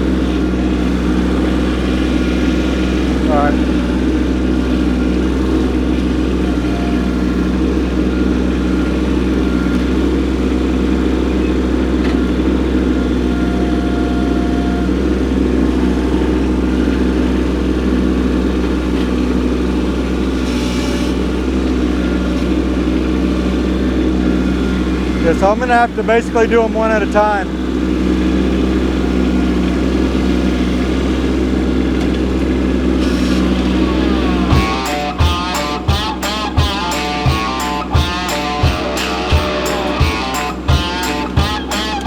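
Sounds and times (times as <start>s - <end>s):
tractor diesel engine running: 0.0s - 42.0s.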